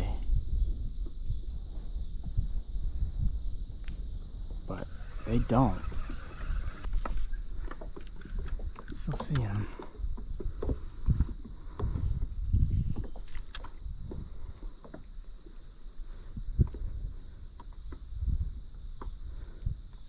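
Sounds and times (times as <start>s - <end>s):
insect chorus trilling: 0.0s - 20.0s
low knocks and thumps: 0.3s - 4.7s, 5.3s - 15.6s, 16.2s - 19.7s.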